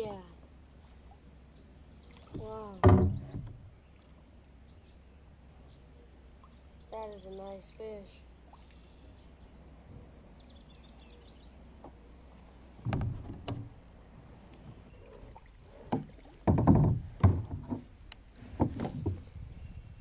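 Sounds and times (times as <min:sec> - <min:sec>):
knocks and thumps in a kayak: 0:02.1 - 0:03.8, 0:12.8 - 0:13.8, 0:14.6 - 0:19.8.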